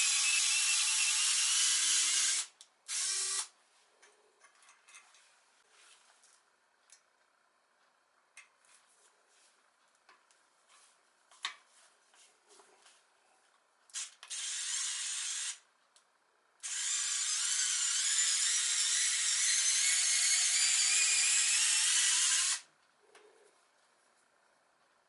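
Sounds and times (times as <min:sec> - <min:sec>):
electric drill whining: 0:00.0 - 0:03.5, 0:14.0 - 0:15.6, 0:16.6 - 0:22.6.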